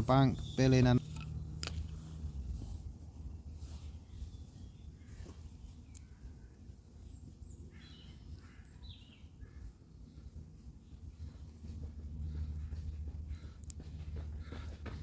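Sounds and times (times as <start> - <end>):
steady low rumble: 5.8 - 15.0.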